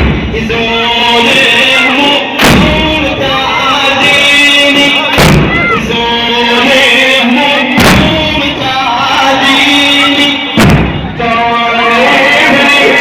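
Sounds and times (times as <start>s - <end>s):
heavy thumps: 0.0s - 0.6s, 2.4s - 3.4s, 5.2s - 5.9s, 7.8s - 8.8s, 10.5s - 11.3s
person chanting a lament: 0.2s - 13.0s.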